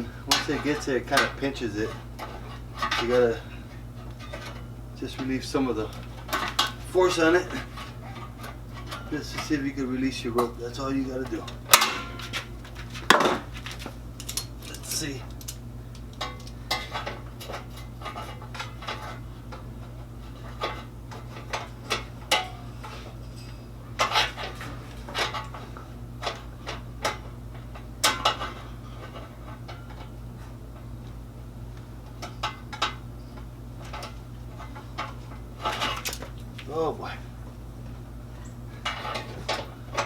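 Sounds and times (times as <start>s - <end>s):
steady low hum: 0.0s - 40.0s
metallic clinks and knocks: 11.2s - 19.2s
loud metal clanks: 11.5s - 12.5s.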